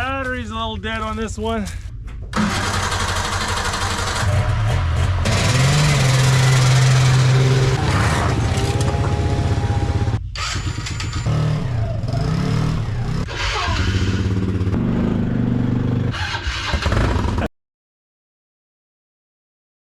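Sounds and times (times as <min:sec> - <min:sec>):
vehicle engines revving: 0:02.4 - 0:17.5.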